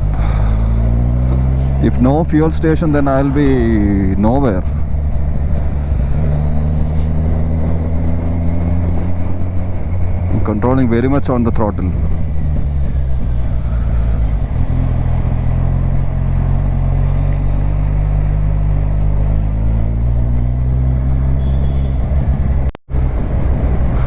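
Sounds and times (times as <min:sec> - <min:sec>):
motorcycle engine cruising: 0:00.0 - 0:24.0.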